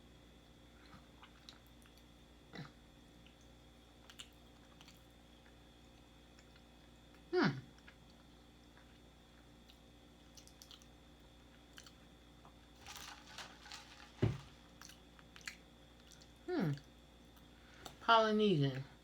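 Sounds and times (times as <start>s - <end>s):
chewing and mouth sounds: 0.8s - 12.6s, 14.8s - 18.0s
crunching: 12.8s - 15.6s.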